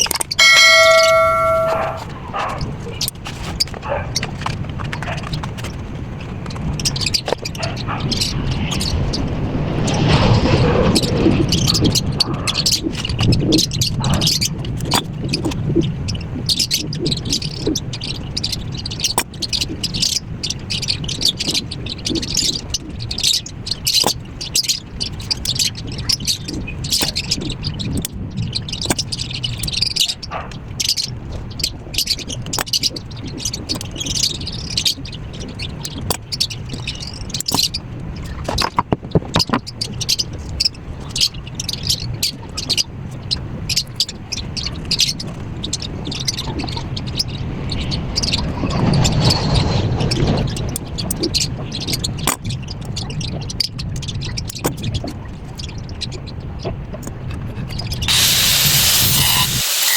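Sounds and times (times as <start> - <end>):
hand tool scraping and clicking: 58.1 - 59.9.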